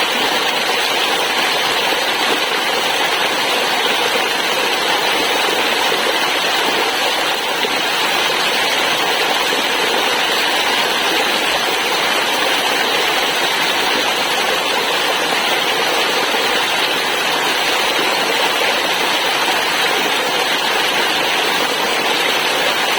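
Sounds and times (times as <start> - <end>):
waterfall rushing: 0.0 - 22.9.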